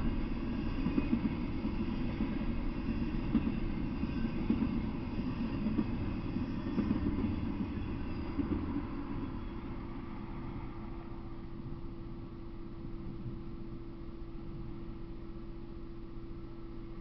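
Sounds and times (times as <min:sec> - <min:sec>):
freight train rumbling past: 0:00.0 - 0:13.2.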